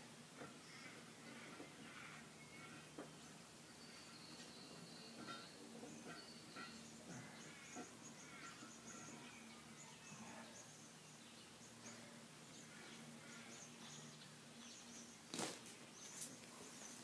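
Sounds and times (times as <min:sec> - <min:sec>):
faint high bird chirps: 0:02.1 - 0:15.2.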